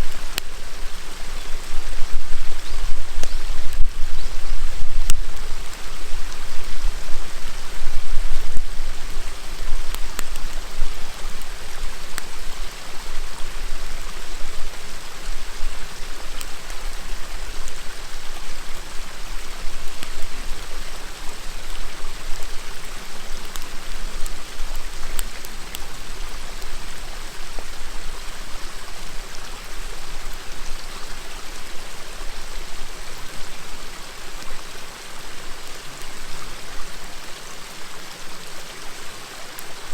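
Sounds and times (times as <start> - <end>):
bonfire crackling and popping: 0.0 - 30.4
river water flowing: 0.0 - 39.9.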